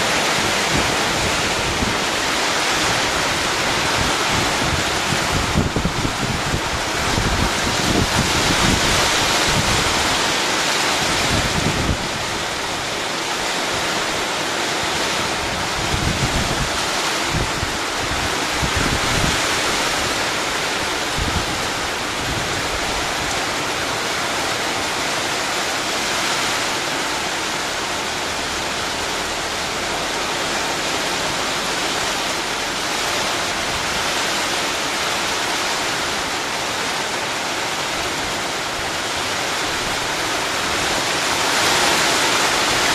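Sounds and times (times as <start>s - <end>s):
wind buffeting microphone: 0.0s - 14.0s, 14.9s - 24.1s
heavy rain hissing: 0.0s - 42.9s.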